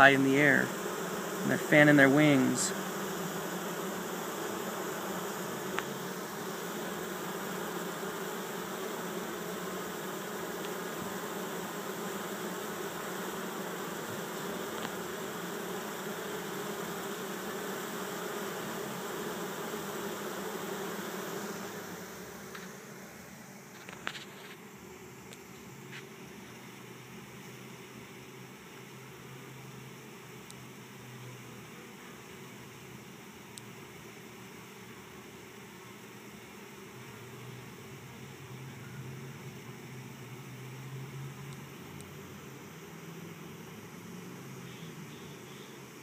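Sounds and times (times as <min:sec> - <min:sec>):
bee swarm buzzing: 0:00.0 - 0:46.0.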